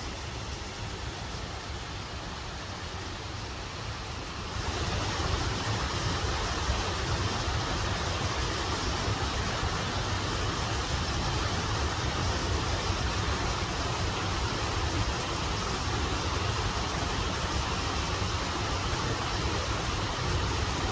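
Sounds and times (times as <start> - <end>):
waterfall rushing: 0.0 - 20.9.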